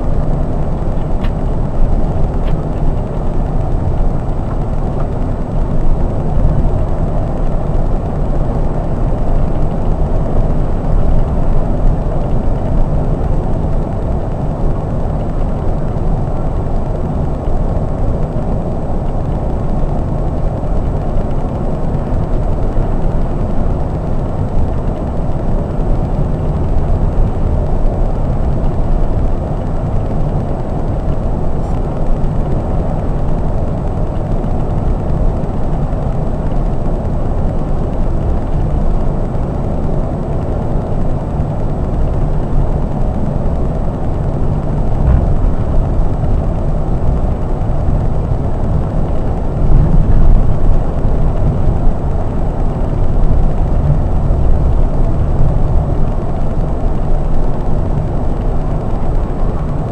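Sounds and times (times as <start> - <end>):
coach engine and road rumble: 0.0 - 59.9.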